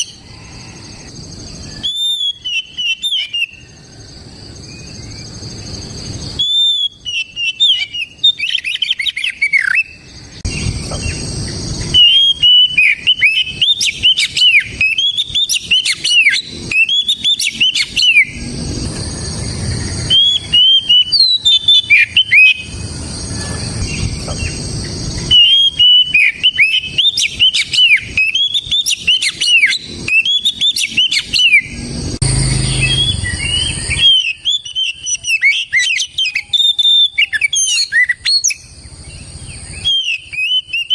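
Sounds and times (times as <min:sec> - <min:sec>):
bird singing whistled phrases: 0:01.6 - 0:03.8, 0:06.3 - 0:11.2, 0:11.8 - 0:18.5, 0:19.7 - 0:22.8, 0:25.2 - 0:38.7, 0:39.7 - 0:40.9.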